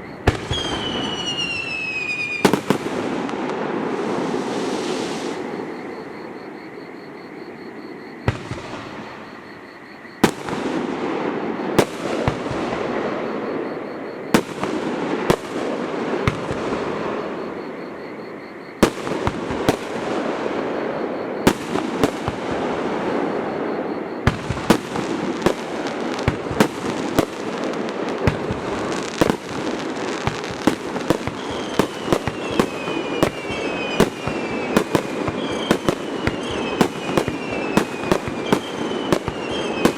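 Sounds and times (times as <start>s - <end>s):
falling whistles: 0.0s - 2.8s, 4.1s - 10.3s, 28.3s - 39.9s
fireworks bursting with echoing rumble: 0.2s - 5.6s, 8.2s - 9.4s, 10.2s - 17.8s, 18.8s - 39.9s.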